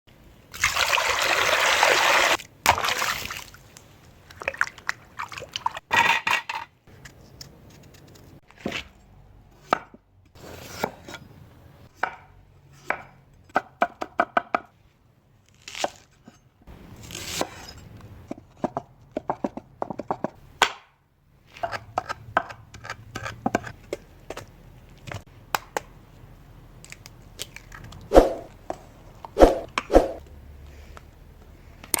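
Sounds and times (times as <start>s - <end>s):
loud rushing noise: 29.4s - 30.2s.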